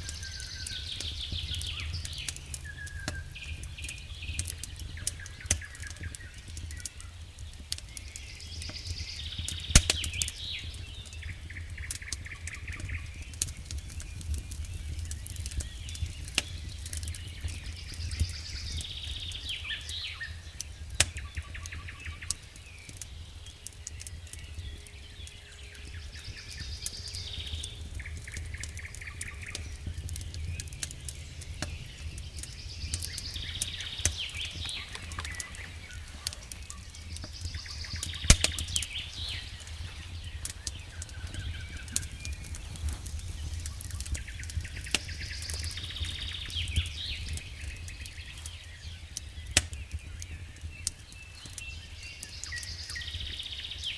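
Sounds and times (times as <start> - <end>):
low steady rumble: 0.0 - 6.5, 24.6 - 49.0
campfire crackling and popping: 0.0 - 53.9
songbird singing: 0.0 - 53.9.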